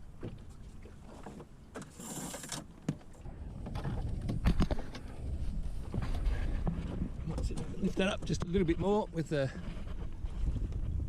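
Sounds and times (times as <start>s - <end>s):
sail gear rustling: 0.0s - 11.0s
sharp knocks against boat: 0.2s - 2.0s.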